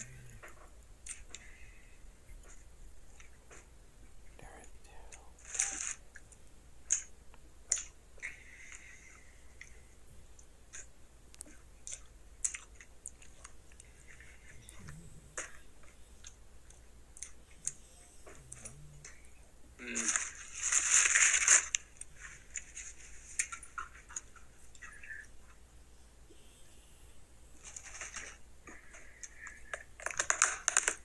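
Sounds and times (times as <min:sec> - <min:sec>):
person chewing: 0:10.4 - 0:20.4.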